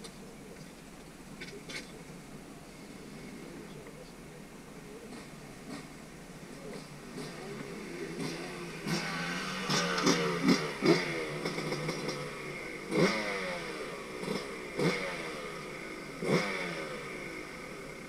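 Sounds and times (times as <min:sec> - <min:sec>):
dirt bike engine revving: 0:05.1 - 0:18.0.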